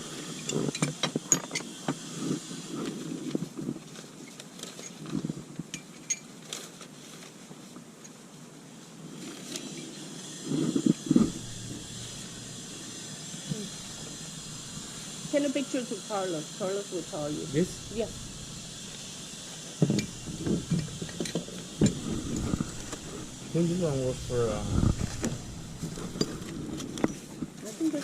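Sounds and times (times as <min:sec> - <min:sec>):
parts clinking and rattling: 0:05.7 - 0:06.6, 0:17.1 - 0:27.6.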